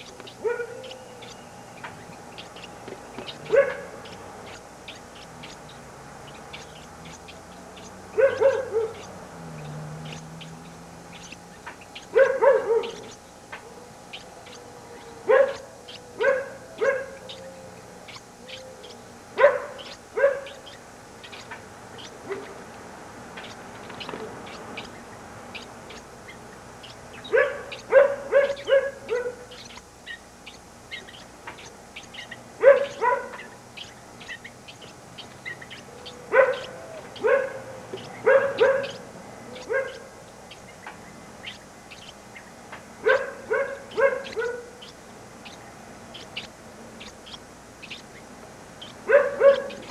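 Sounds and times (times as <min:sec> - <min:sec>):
faint high chirps: 0:00.0 - 0:22.6, 0:23.4 - 0:49.9
animal yelping: 0:03.4 - 0:04.6, 0:08.2 - 0:09.1, 0:12.0 - 0:13.9, 0:14.5 - 0:20.8, 0:36.0 - 0:40.1, 0:49.1 - 0:49.9.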